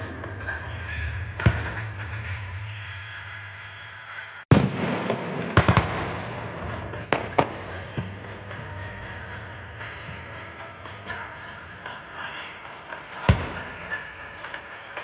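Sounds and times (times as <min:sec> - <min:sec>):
fireworks bursting: 0:04.5 - 0:15.0.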